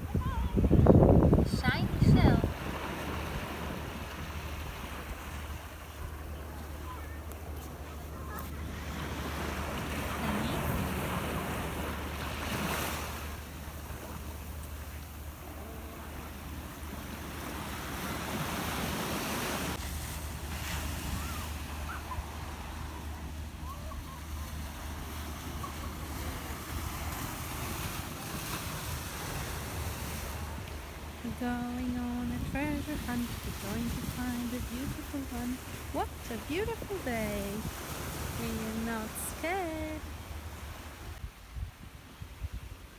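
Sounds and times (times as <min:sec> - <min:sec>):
wind buffeting microphone: 0:00.0 - 0:06.6
waves washing onto beach: 0:00.0 - 0:42.9.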